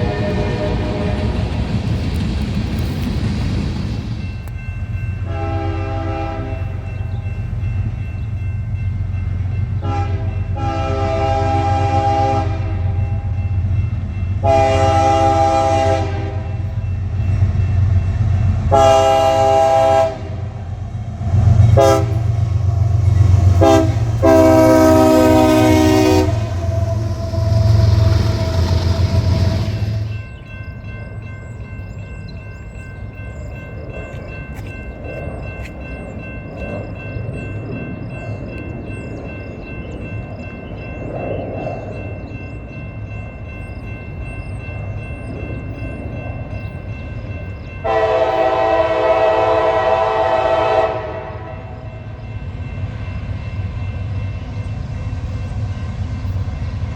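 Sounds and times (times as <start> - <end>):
train air horn blasts: 0.0 - 1.4, 5.2 - 6.8, 9.8 - 13.3, 14.4 - 16.6, 18.7 - 20.6, 21.5 - 22.4, 23.4 - 30.1, 47.8 - 51.9
train rumbling past: 0.0 - 56.9.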